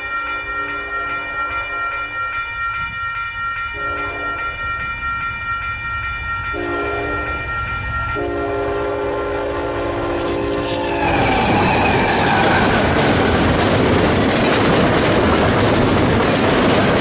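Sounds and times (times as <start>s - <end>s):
train passing rumble: 6.5s - 17.0s
locomotive horn blasts: 8.2s - 13.4s
high-pitched ringing tone: 9.4s - 12.1s.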